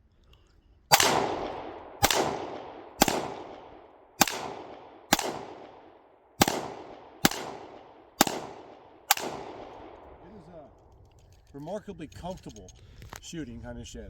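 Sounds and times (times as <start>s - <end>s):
gunshots with echoing tail: 0.9s - 10.4s.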